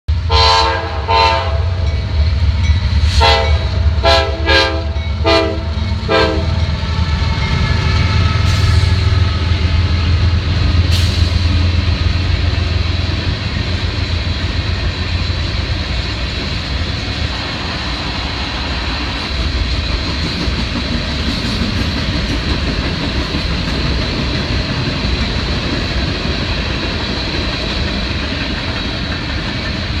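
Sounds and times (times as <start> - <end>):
train rumbling and clattering past: 0.1 - 30.0
train horn blasts: 0.2 - 2.0, 3.0 - 10.3.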